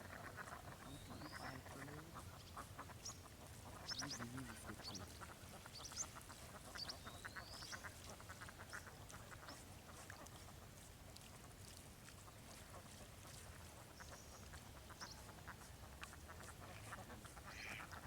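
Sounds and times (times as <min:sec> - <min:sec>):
rapid quack-like animal calls: 0:15.4 - 0:18.0.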